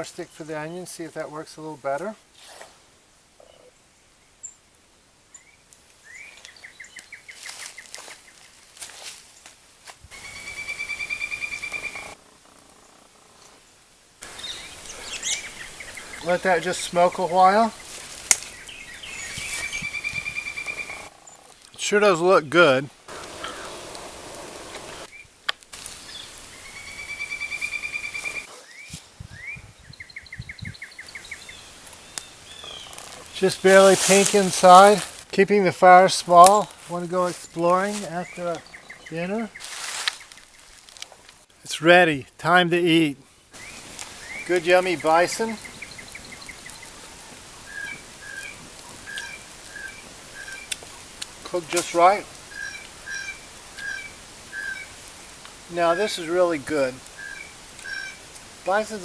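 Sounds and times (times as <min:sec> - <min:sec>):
steady outdoor hiss: 0:00.0 - 0:59.0
songbird trilling: 0:05.3 - 0:08.4, 0:10.1 - 0:12.2, 0:14.2 - 0:21.5, 0:26.0 - 0:33.8, 0:38.0 - 0:40.6, 0:43.6 - 0:50.8, 0:52.5 - 0:54.9, 0:57.2 - 0:58.2.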